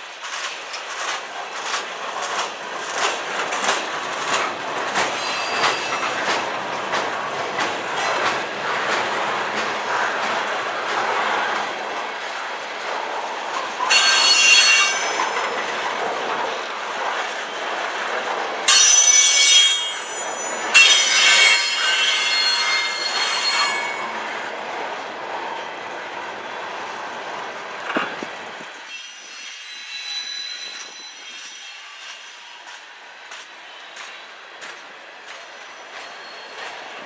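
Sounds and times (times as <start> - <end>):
freight train cars rolling: 0.0 - 37.0
wheels squealing: 5.1 - 6.2, 13.9 - 15.4.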